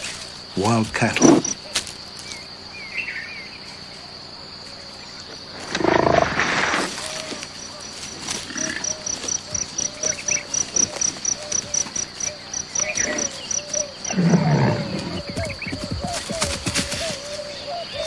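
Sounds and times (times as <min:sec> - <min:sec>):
insect chirping: 0:00.0 - 0:18.0
large animal growling: 0:14.0 - 0:15.6.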